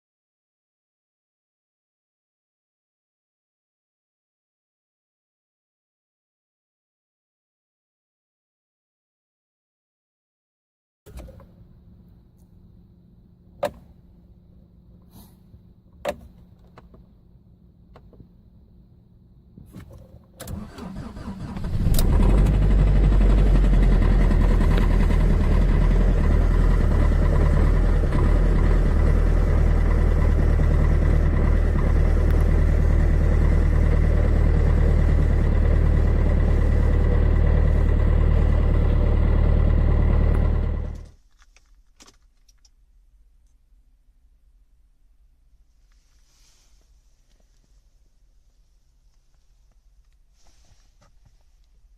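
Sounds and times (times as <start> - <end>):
car engine cranking: 20.4 - 41.1
car engine idling: 20.5 - 41.1.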